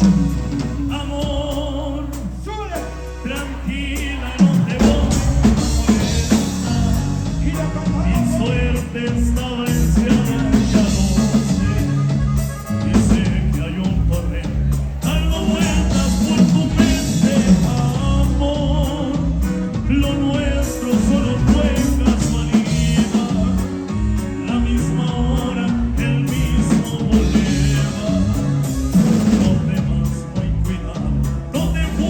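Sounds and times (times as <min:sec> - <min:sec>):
band playing instrumental music: 0:00.0 - 0:32.0.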